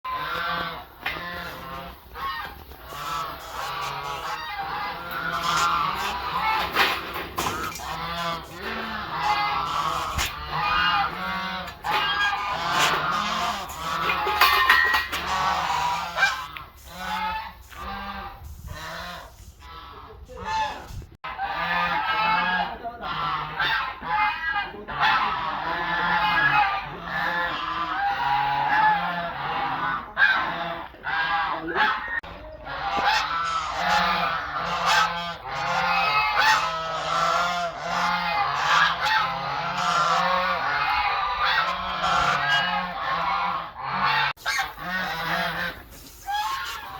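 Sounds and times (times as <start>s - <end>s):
fowl calling: 0.1s - 46.9s
geese honking: 0.1s - 46.9s.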